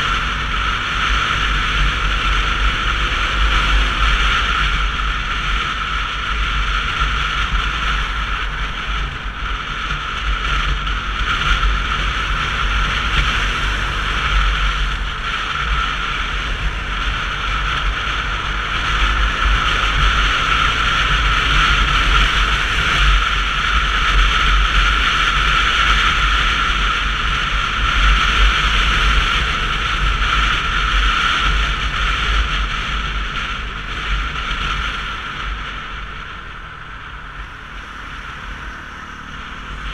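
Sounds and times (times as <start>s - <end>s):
deep engine rumble: 0.0s - 39.9s
motorcycle road noise: 0.0s - 39.9s
wind rushing over microphone: 0.0s - 39.9s.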